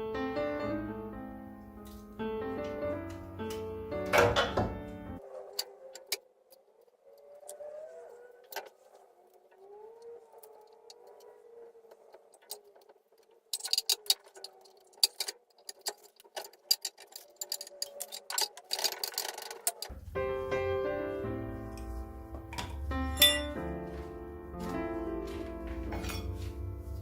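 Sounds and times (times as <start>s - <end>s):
hand tools clinking on metal: 13.5s - 19.9s, 22.5s - 24.0s, 25.3s - 26.6s.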